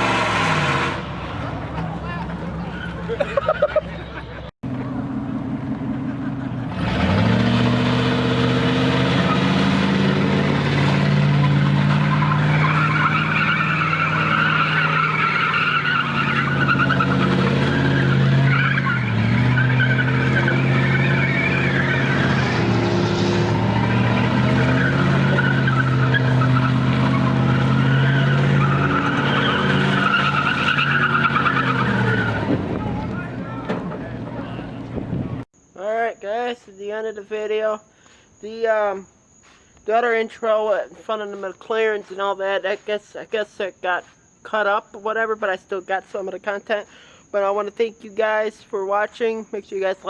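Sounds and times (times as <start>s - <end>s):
engine revving high: 0.0s - 1.2s, 6.6s - 15.0s, 15.7s - 33.4s
tires squealing: 0.0s - 35.4s.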